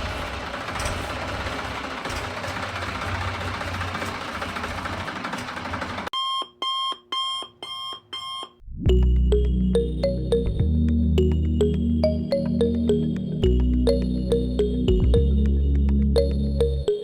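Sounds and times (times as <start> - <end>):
electronic alarm beeps: 6.2 - 8.6
music with heavy bass: 8.9 - 17.0.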